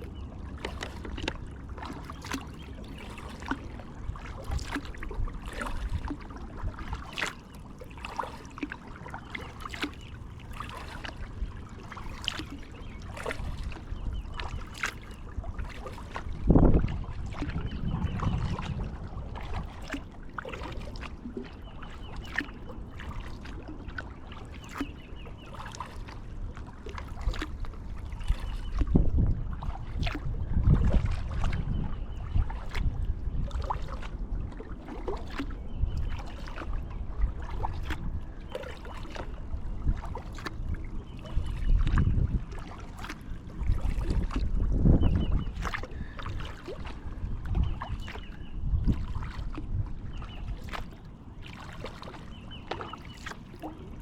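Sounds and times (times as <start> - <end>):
paddle strokes through water: 0.0 - 54.0.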